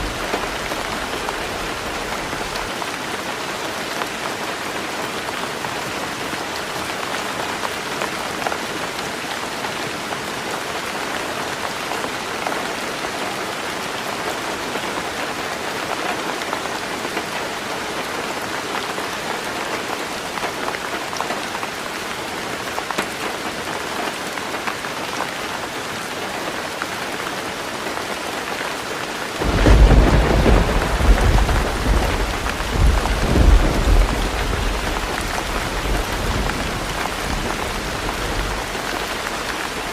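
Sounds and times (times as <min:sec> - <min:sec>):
heavy rain on a tin roof: 0:00.0 - 0:39.9
thunder rumbling: 0:29.4 - 0:39.2.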